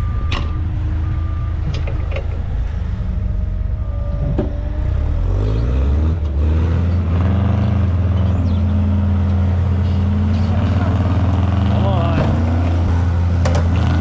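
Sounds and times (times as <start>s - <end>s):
heavy equipment engine revving: 0.0s - 14.0s.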